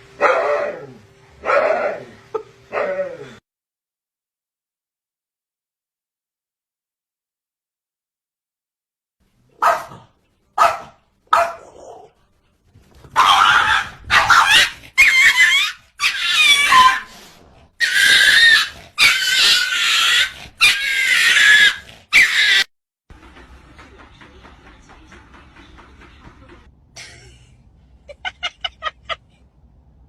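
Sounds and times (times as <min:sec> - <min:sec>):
dog barking: 0:00.2 - 0:03.0, 0:09.6 - 0:12.1, 0:13.2 - 0:17.1
dog wavering calls: 0:13.2 - 0:17.1, 0:17.8 - 0:22.7.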